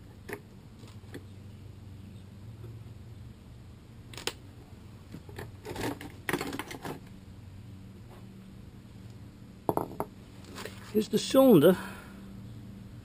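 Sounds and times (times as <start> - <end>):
low steady hum: 0.0 - 13.0
rustling: 10.4 - 11.0.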